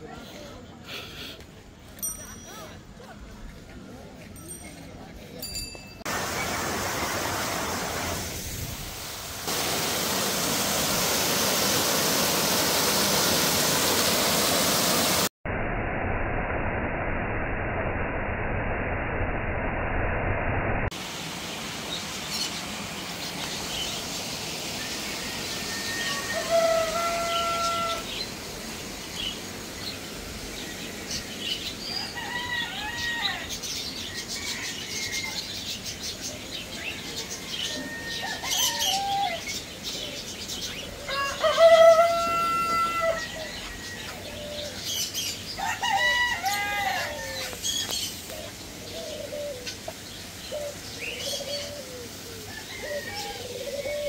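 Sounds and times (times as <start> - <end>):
birds chirping and calling: 29.0 - 54.0.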